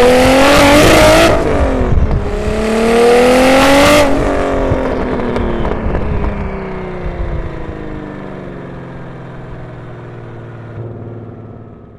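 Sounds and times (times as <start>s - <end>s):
car exhaust note: 0.0s - 7.9s.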